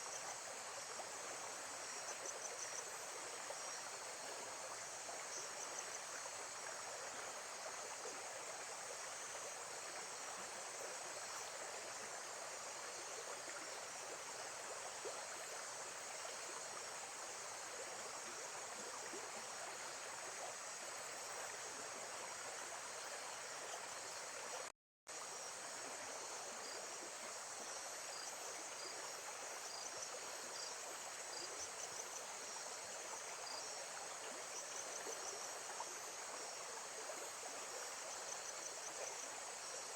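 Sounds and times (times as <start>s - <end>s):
insects chirping: 25.2s - 39.9s.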